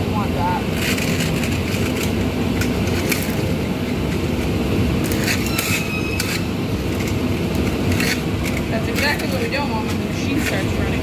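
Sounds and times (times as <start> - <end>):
workshop machinery rumble: 0.0 - 11.0.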